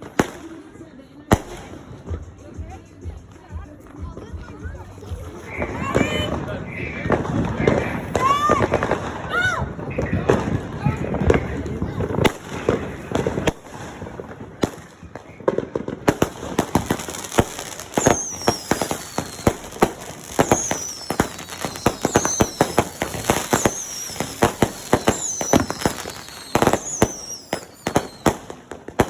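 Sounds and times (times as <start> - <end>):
fireworks bangs and crackling: 0.0 - 29.0
high falling whistles: 18.0 - 19.4.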